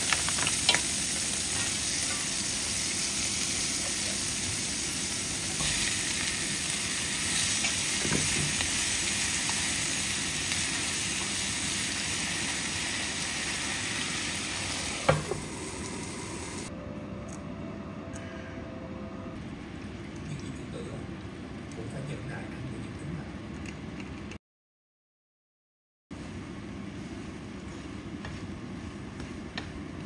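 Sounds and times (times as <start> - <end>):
food sizzling in a frying pan: 0.0 - 16.7.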